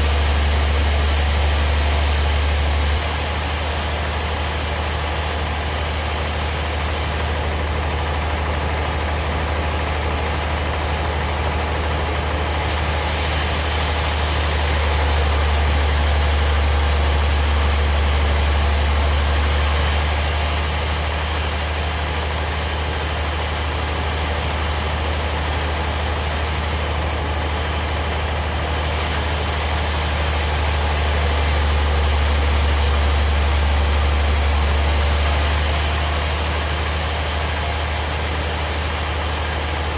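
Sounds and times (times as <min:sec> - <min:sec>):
blade cutting wood hiss: 0:00.0 - 0:04.4, 0:12.4 - 0:24.4, 0:28.5 - 0:39.9
bandsaw sawmill humming: 0:00.0 - 0:39.9.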